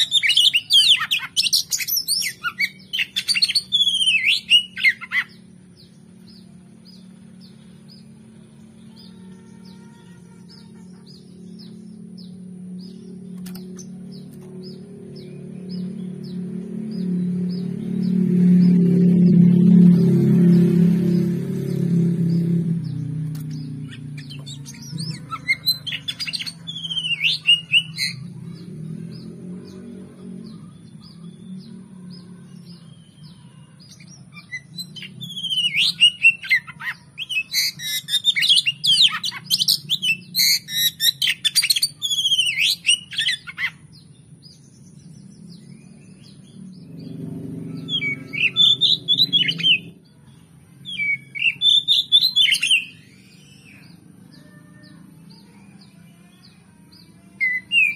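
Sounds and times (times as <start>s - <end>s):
bird singing whistled phrases: 0.0s - 5.4s, 23.9s - 28.2s, 34.4s - 43.8s, 50.9s - 53.9s, 57.4s - 57.9s
steady low hum: 0.6s - 35.4s.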